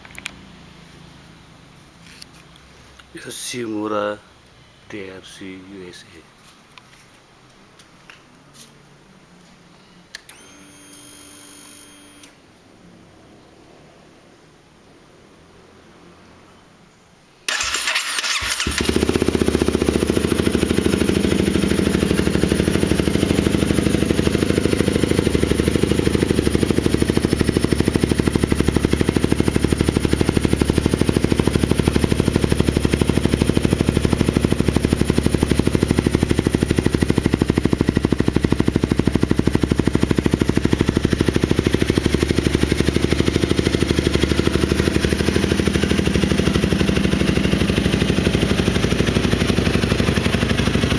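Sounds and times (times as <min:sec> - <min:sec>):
motorcycle engine starting and idling: 0:00.0 - 0:03.1, 0:10.1 - 0:12.5, 0:17.5 - 0:50.9.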